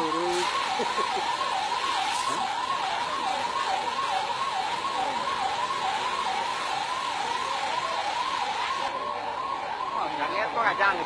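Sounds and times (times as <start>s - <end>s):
fire truck siren warbling: 0.0s - 11.0s.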